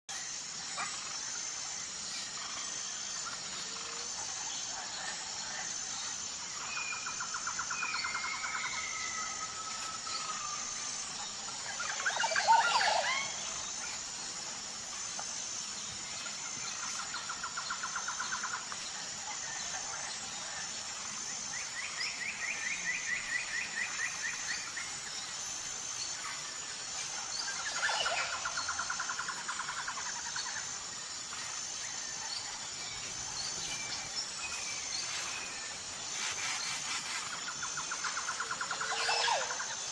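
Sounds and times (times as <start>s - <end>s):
forest birds trilling: 6.0s - 39.9s.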